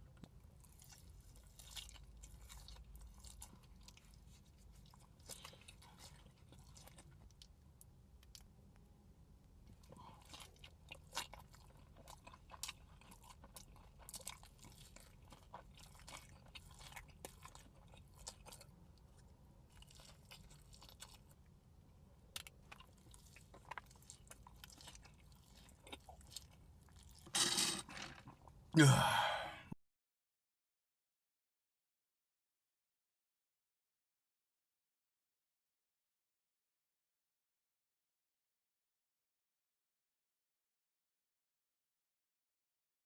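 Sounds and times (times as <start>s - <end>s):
chewing and crunching food: 0.0s - 8.9s, 9.5s - 28.7s.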